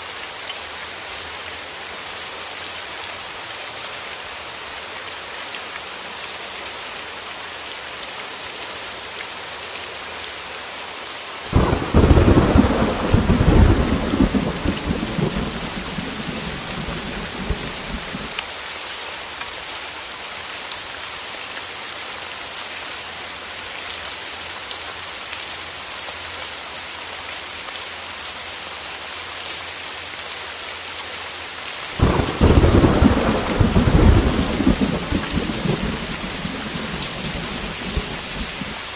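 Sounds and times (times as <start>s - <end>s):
heavy rain falling: 0.0s - 38.9s
thunder rumbling: 11.5s - 18.4s, 32.0s - 38.9s.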